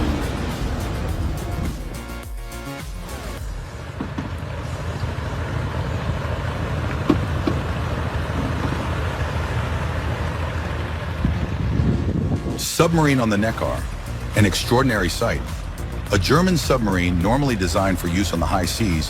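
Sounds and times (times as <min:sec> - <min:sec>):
noisy hiss: 0:00.0 - 0:03.9
vehicle rumble: 0:00.0 - 0:19.0.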